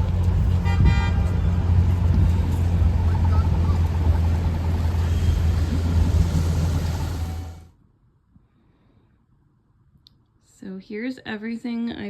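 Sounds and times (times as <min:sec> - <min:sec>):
city street traffic rumble: 0:00.0 - 0:07.8.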